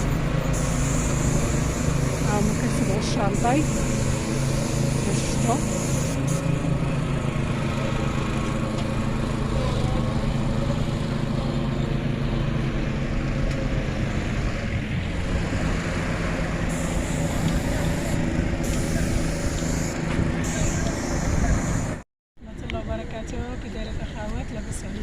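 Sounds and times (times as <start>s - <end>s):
boat engine running: 0.0s - 25.0s.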